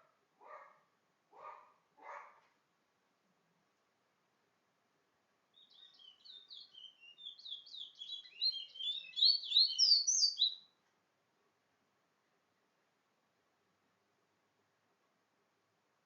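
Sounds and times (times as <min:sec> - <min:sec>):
songbird whistling: 0:05.6 - 0:10.7.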